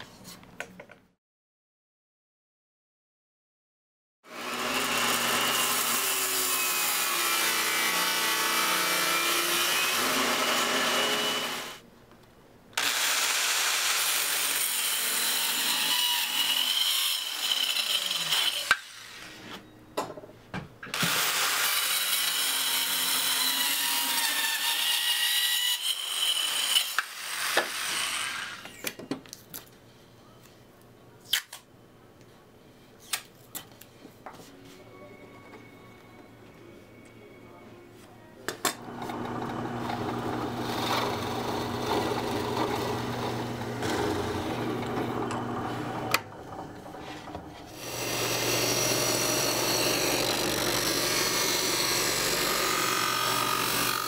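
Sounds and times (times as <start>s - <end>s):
power saw cutting wood: 4.3s - 11.8s, 12.8s - 19.5s, 20.9s - 28.8s, 38.8s - 54.0s.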